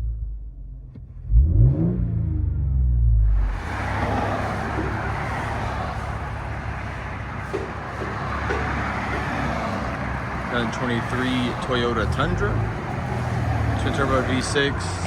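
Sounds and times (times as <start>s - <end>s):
low exhaust rumble: 0.0s - 15.0s
road noise hiss: 3.5s - 15.0s.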